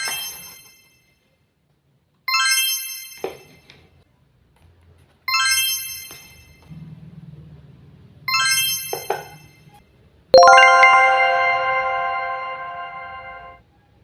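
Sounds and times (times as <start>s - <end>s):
bright chime tones ringing: 10.4s - 13.6s.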